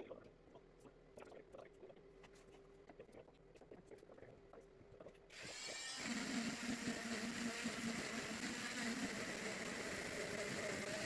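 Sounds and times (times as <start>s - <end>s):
electric motor running: 5.4s - 11.0s.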